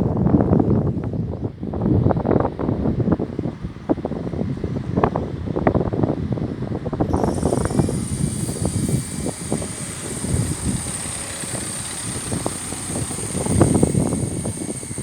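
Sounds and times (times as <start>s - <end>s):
high-pitched whine: 7.1s - 15.0s.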